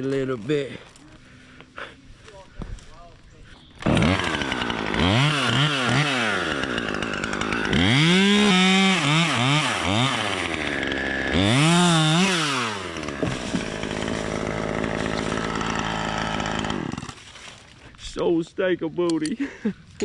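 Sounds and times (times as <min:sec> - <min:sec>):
chainsaw revving: 0:03.8 - 0:17.3.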